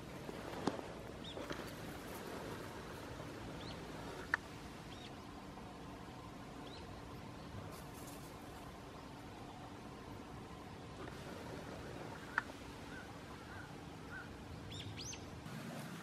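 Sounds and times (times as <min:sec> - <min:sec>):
faint outdoor ambience: 0:00.0 - 0:16.0
small birds chirping: 0:01.1 - 0:02.6, 0:03.5 - 0:05.4, 0:06.5 - 0:09.8, 0:12.1 - 0:15.4.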